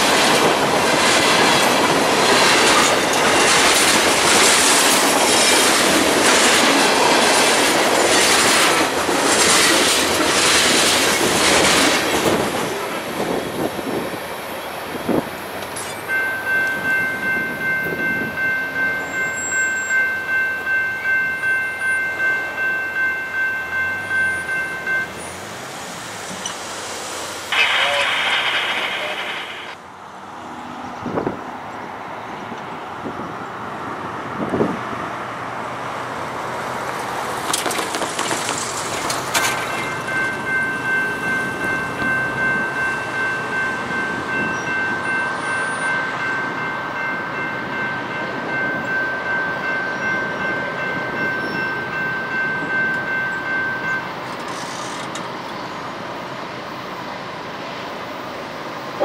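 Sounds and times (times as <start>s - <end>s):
train rumbling past: 0.0s - 59.0s
high-pitched ringing tone: 15.8s - 25.3s.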